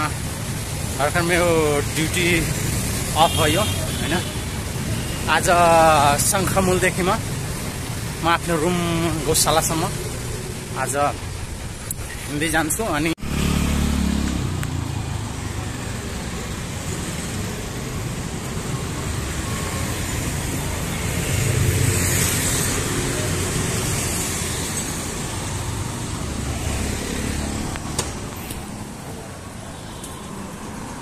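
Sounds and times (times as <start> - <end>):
road traffic passing: 0.0 - 31.0
vehicle passing loudly: 13.1 - 16.0.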